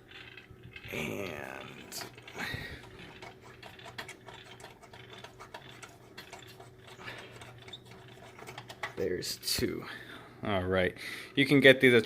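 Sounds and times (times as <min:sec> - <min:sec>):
steady low hum: 0:00.0 - 0:12.0
light bulb unscrewing ticks: 0:02.0 - 0:09.0.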